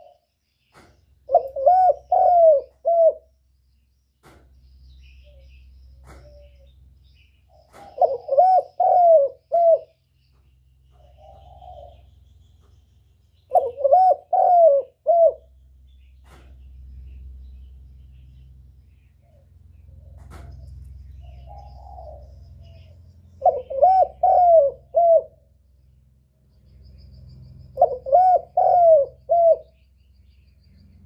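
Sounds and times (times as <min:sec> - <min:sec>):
dove cooing: 0:00.0 - 0:03.3, 0:07.5 - 0:10.0, 0:10.9 - 0:12.2, 0:13.5 - 0:15.5, 0:19.2 - 0:25.5, 0:27.8 - 0:29.8
low steady hum: 0:00.0 - 0:31.0.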